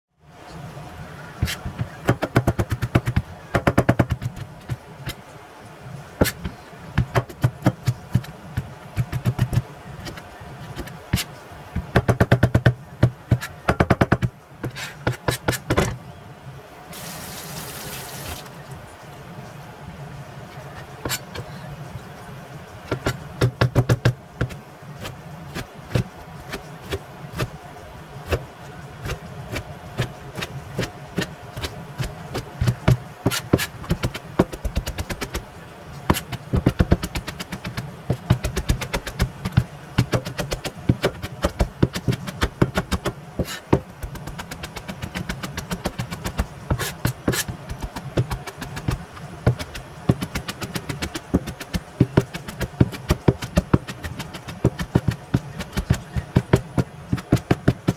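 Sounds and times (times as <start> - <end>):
knife chopping on cutting board: 1.4 - 4.8, 22.9 - 27.5, 29.0 - 35.4, 36.1 - 57.9.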